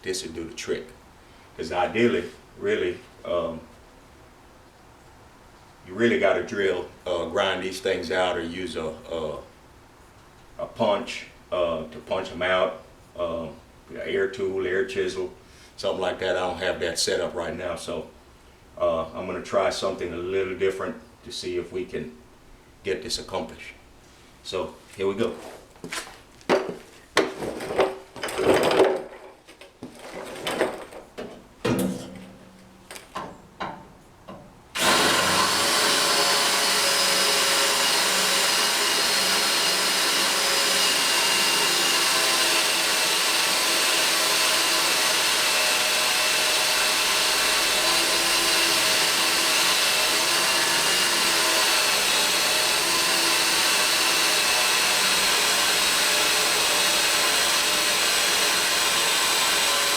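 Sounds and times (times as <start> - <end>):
knocks and clanks: 26.5 - 34.5
power drill grinding into steel: 34.8 - 59.9.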